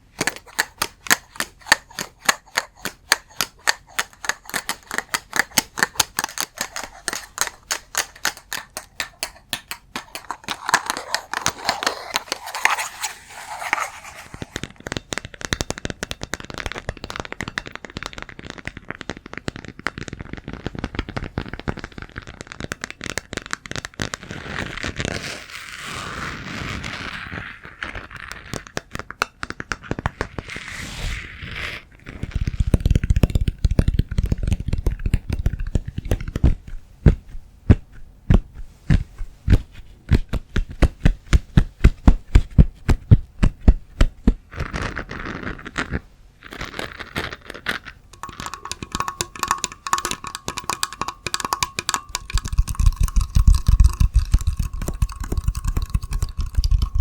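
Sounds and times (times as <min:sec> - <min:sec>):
scratchy sound: 0:00.0 - 0:14.8, 0:24.2 - 0:28.7, 0:30.0 - 0:33.2
sharp tapping: 0:48.1 - 0:57.0.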